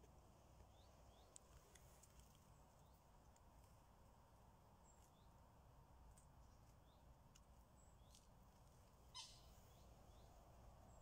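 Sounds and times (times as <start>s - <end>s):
small birds chirping: 0.5s - 3.4s, 4.7s - 5.5s, 6.1s - 11.0s.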